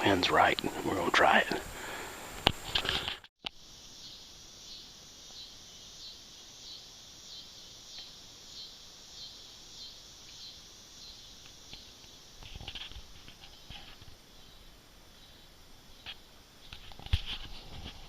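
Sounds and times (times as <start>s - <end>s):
faint rustle: 0.0s - 4.2s, 10.3s - 18.0s
insects buzzing in trees: 0.0s - 18.0s.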